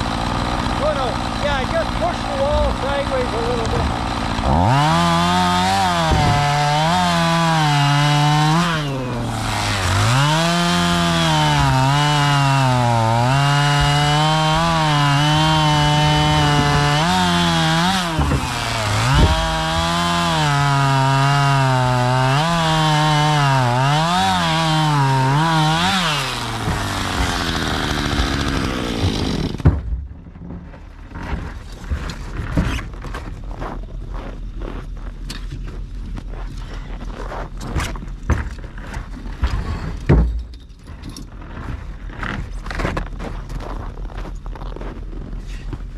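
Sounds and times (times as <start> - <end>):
chainsaw cutting logs: 0.0 - 29.9.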